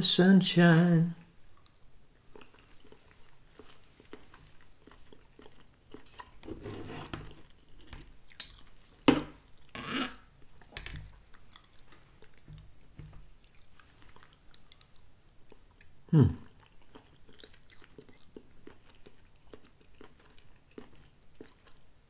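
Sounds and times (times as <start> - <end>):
person chewing: 1.2 - 22.0
cutlery scraping plastic tray: 6.4 - 7.4.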